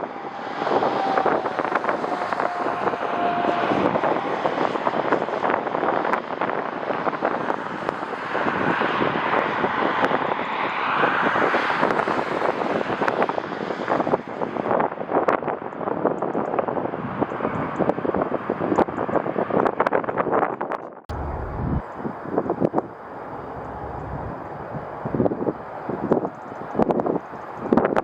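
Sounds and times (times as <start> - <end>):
jet airliner engines: 0.0 - 20.0, 21.1 - 28.0
gusting wind on microphone: 0.0 - 28.0
faint falling whine: 21.1 - 25.7.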